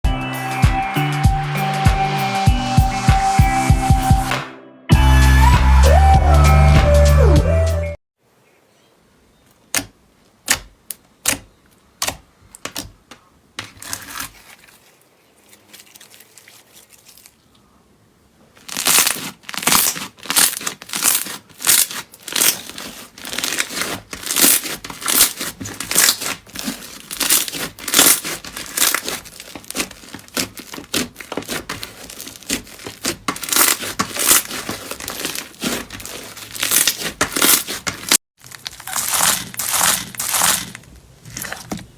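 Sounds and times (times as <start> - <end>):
slime crackling and squelching: 13.8 - 17.5, 18.6 - 41.9.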